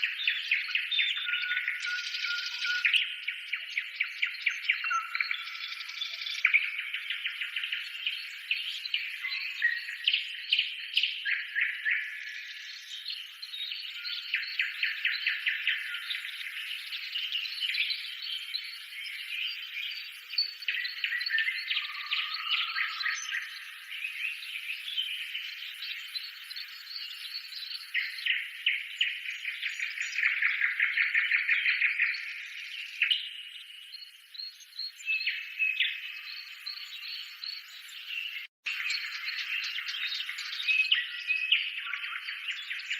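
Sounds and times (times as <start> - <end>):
small birds chirping and trilling: 0.0 - 42.9.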